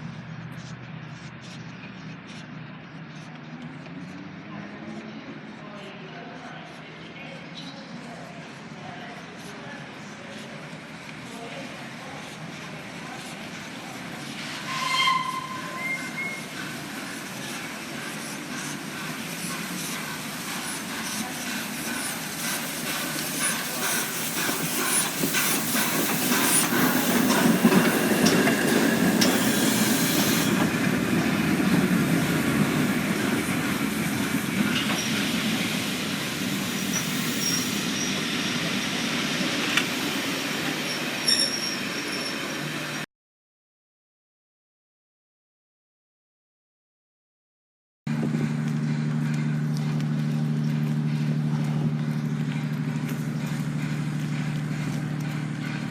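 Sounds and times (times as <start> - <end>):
train rumbling past: 8.0 - 43.1, 48.1 - 55.9
wheels clanking on rails: 12.5 - 38.8, 48.1 - 55.9.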